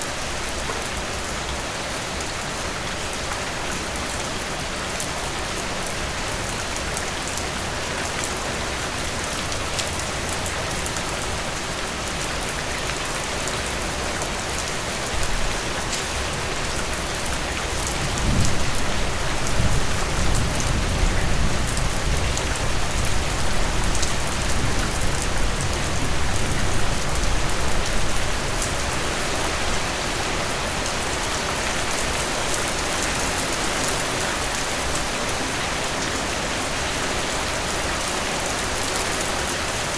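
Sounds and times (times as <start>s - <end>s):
heavy rain falling: 0.0s - 39.9s
low rumble of thunder: 17.9s - 28.3s.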